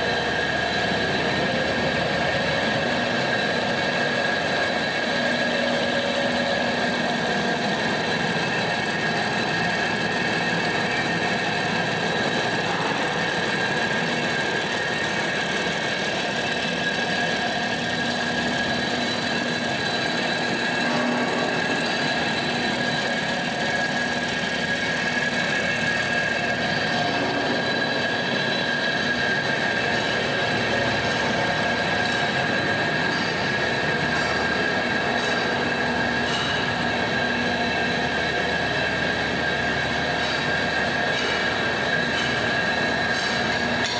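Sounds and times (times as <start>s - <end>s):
high-pitched machinery tones: 0.0s - 43.9s
wood chipper engine running: 0.0s - 43.9s.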